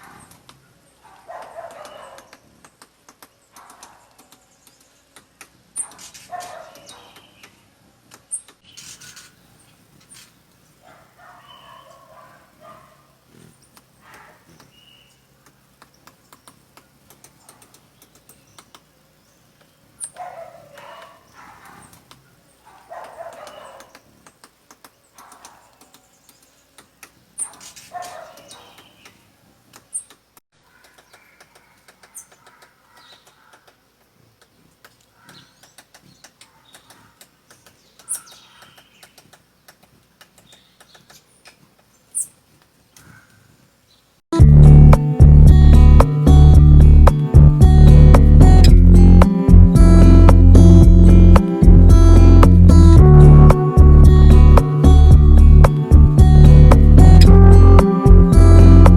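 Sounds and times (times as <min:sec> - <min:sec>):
animal calls: 0:08.7 - 0:15.2, 0:20.0 - 0:24.3, 0:27.4 - 0:29.2, 0:29.9 - 0:33.8, 0:34.6 - 0:37.4
woodpecker pecking at wood: 0:15.4 - 0:19.0, 0:19.6 - 0:41.9.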